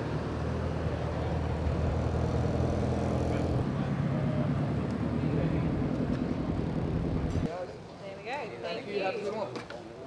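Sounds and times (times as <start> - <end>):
cars driving slowly past: 0.0 - 7.7.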